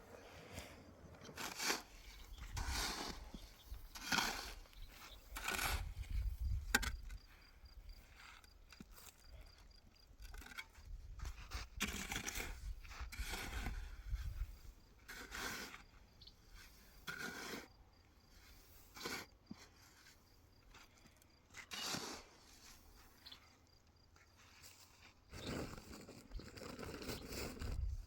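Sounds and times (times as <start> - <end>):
scraping strokes: 0.4 - 7.0, 16.5 - 17.8, 20.8 - 23.5.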